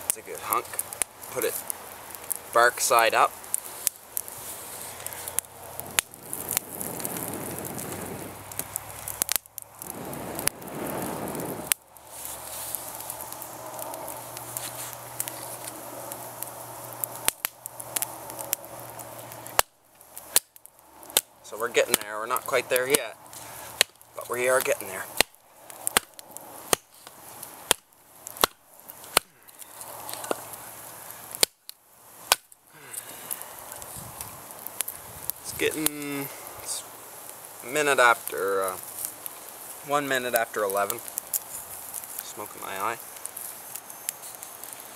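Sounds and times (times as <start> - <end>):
campfire crackling and popping: 0.0 - 44.9
steady fire hiss: 0.0 - 44.9.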